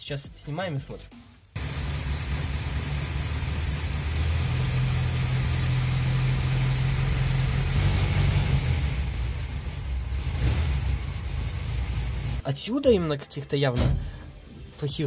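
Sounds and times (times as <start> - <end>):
low engine and drivetrain hum: 1.6 - 12.4.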